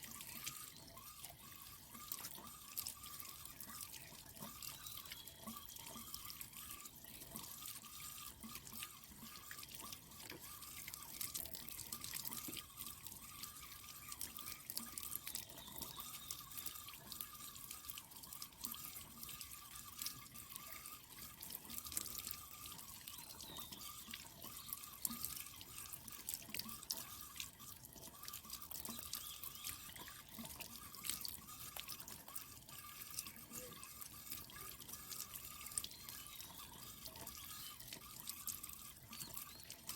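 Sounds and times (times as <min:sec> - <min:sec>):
water dripping and trickling: 0:00.0 - 0:39.9.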